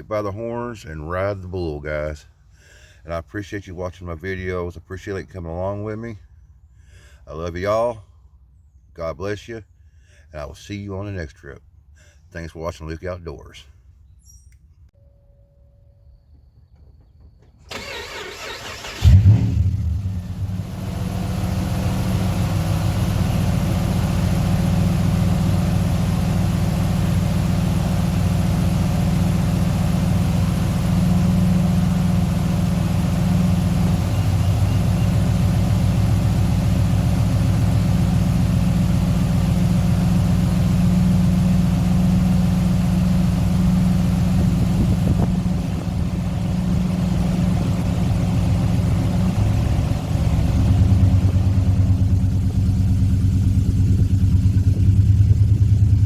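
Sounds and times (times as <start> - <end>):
truck engine idling: 17.7 - 56.0.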